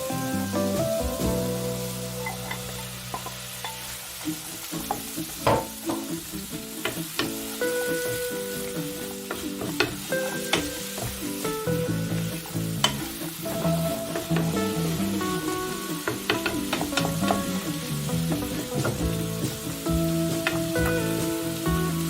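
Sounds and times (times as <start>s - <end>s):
food sizzling in a pan: 0.0s - 22.0s
soft background music: 0.0s - 22.0s
utensil clicking against pan: 12.8s - 13.2s, 16.0s - 17.6s.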